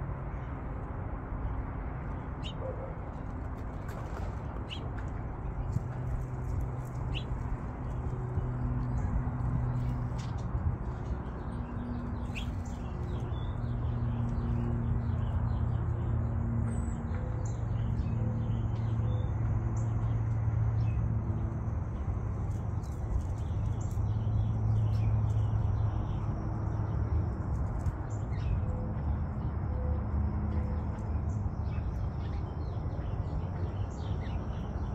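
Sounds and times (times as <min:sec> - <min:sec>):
small birds chirping: 0:02.4 - 0:02.7, 0:04.6 - 0:04.9, 0:05.5 - 0:10.4, 0:11.2 - 0:15.6.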